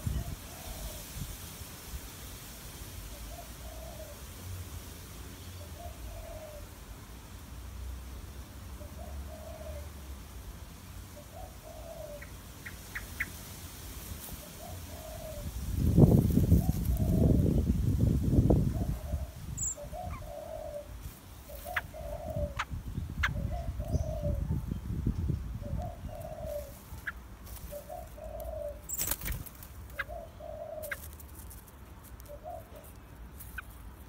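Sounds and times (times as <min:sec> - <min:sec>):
dove cooing: 0:03.3 - 0:04.2, 0:05.8 - 0:06.7, 0:08.8 - 0:09.9, 0:11.2 - 0:12.3, 0:14.6 - 0:15.5, 0:18.7 - 0:24.6, 0:25.6 - 0:31.1.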